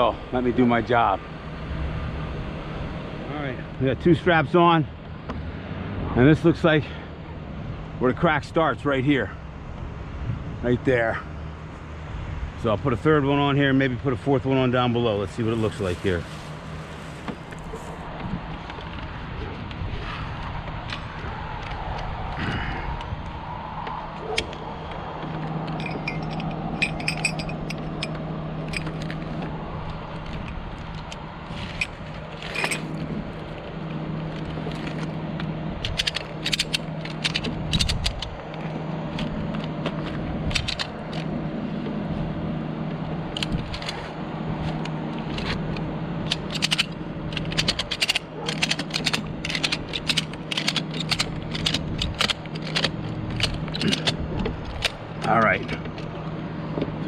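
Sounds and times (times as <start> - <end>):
truck engine hum: 0.0 - 57.0
hardware rattling: 25.2 - 41.3, 43.3 - 56.2
ratchet strap clicking: 35.8 - 41.3, 43.3 - 56.0.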